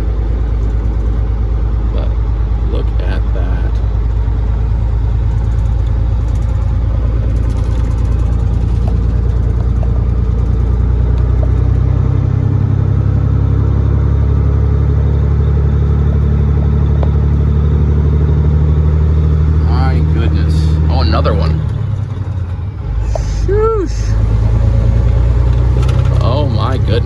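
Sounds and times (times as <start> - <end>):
diesel truck engine droning: 0.0 - 27.0.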